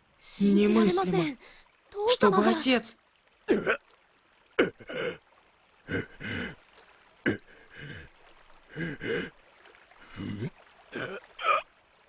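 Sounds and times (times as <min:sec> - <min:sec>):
person gasping for breath: 0:05.9 - 0:06.6, 0:07.3 - 0:08.1, 0:08.7 - 0:09.3.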